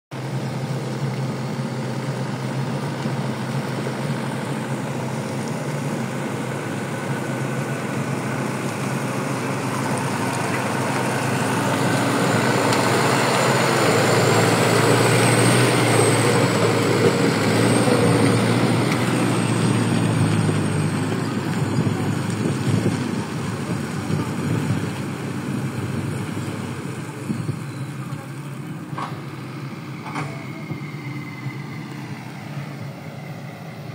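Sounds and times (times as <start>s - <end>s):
vehicle engine running: 0.1s - 33.9s
faint high whine: 29.5s - 33.9s.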